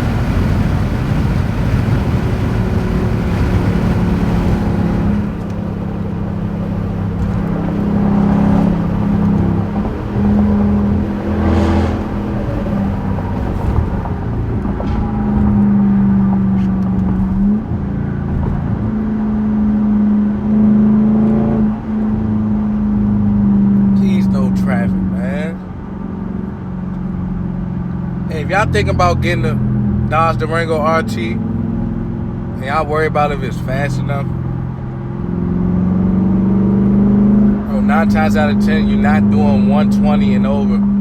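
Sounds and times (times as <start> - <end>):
car exhaust drone: 0.0 - 41.0.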